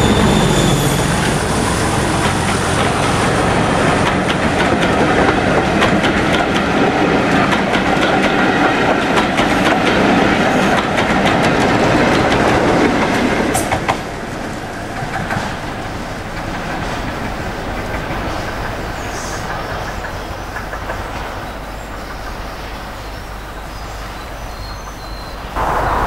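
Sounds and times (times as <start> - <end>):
brief high squeak: 0.0 - 1.5
train wheels clattering over joints: 0.0 - 22.5.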